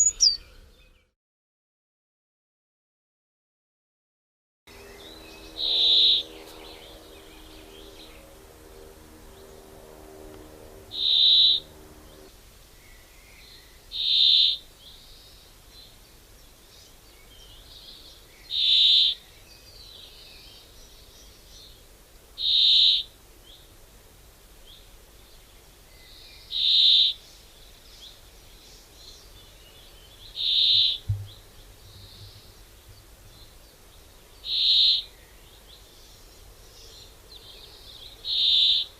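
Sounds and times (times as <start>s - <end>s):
bird high call: 0.0s - 0.7s, 4.7s - 8.2s, 10.9s - 11.8s, 22.4s - 23.1s, 30.3s - 32.5s, 34.4s - 35.2s, 38.2s - 38.9s
low steady drone: 4.7s - 12.4s.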